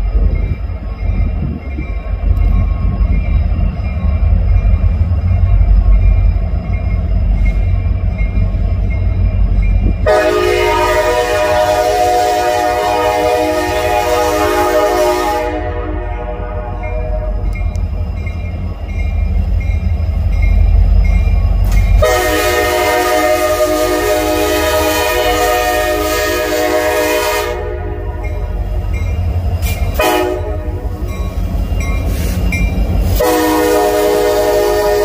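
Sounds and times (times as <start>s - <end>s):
locomotive engine rumble: 0.0s - 35.0s
locomotive air horn: 10.0s - 17.4s, 22.0s - 28.2s, 30.0s - 30.8s, 33.2s - 35.0s.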